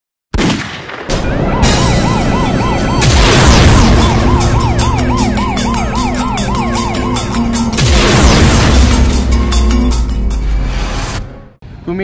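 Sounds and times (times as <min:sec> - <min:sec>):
music with steady beat: 0:01.8 - 0:10.9.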